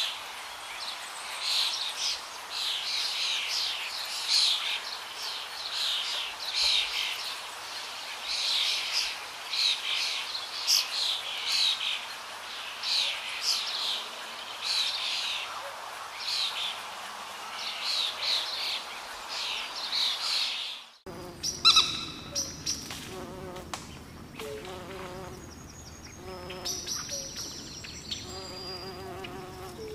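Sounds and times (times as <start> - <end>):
small birds chirping: 17.5 - 29.9.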